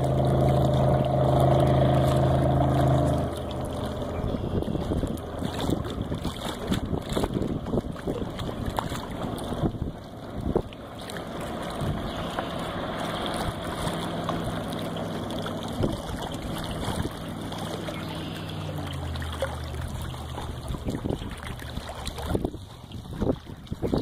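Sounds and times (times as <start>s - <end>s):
boat engine running: 0.0s - 24.0s
water noise: 0.0s - 24.0s
wind noise: 3.8s - 10.8s, 11.6s - 13.6s, 20.4s - 24.0s.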